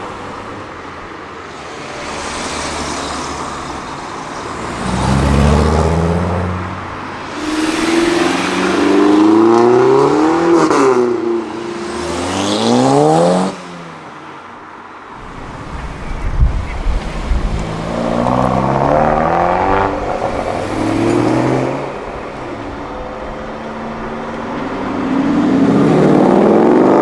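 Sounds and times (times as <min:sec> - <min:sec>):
car engine accelerating hard: 0:15.2 - 0:27.0.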